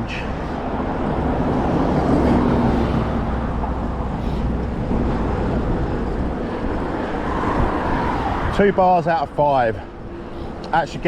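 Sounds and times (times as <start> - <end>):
wind on microphone: 0.7 - 8.8.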